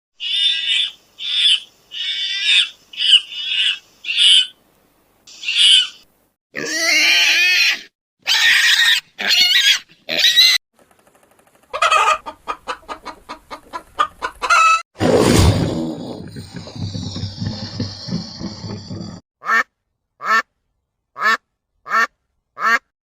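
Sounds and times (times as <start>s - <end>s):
high-pitched animal calls: 0.2s - 4.5s, 5.3s - 10.6s.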